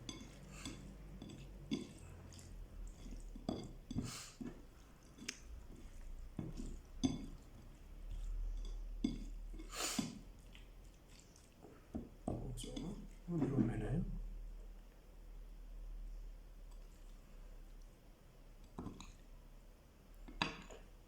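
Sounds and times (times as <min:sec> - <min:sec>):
wet squelching seafood: 0:00.0 - 0:11.9.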